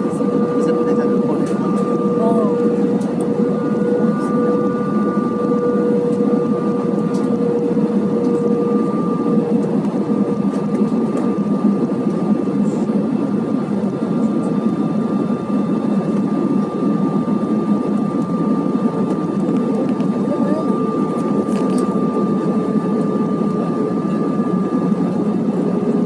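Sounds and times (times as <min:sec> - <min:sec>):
low tone: 0:00.0 - 0:11.2
airliner cabin engine drone: 0:00.0 - 0:26.0
thin steady whine: 0:00.0 - 0:26.0.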